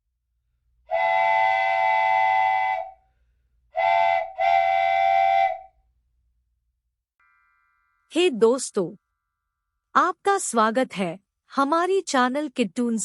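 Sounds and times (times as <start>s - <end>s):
whistle blasts: 0.9s - 3.0s, 3.8s - 5.8s.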